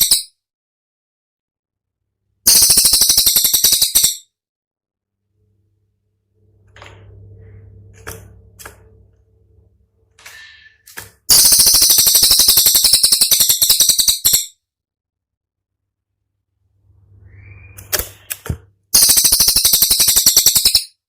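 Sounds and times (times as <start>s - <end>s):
faint low hum: 5.1s - 10.4s
whistled bird note: 17.0s - 18.3s.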